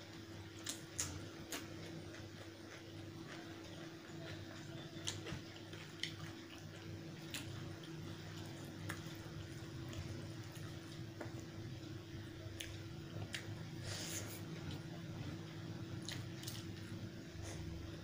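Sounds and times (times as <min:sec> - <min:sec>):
steady low hum: 0:00.0 - 0:18.0
wet eating clicks and smacks: 0:16.0 - 0:16.9.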